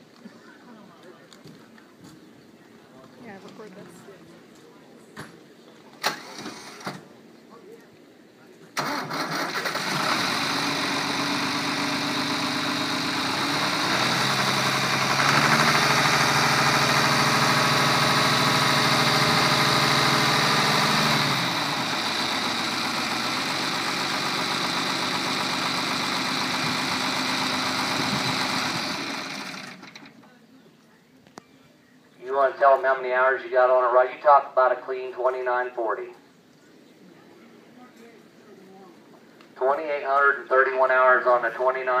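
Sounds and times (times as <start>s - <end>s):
tractor diesel engine revving: 6.0s - 7.1s, 8.8s - 30.2s.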